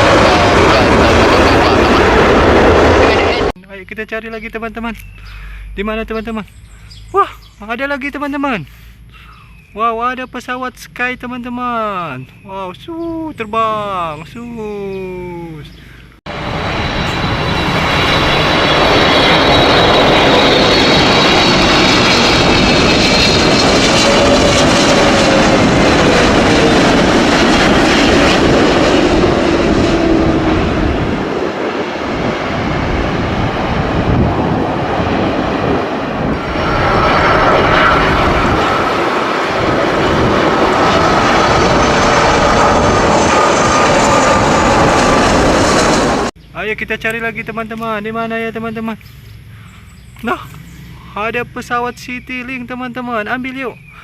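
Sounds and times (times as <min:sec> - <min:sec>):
airplane engines roaring: 0:00.0 - 0:54.0
engine whining tones: 0:13.7 - 0:46.4.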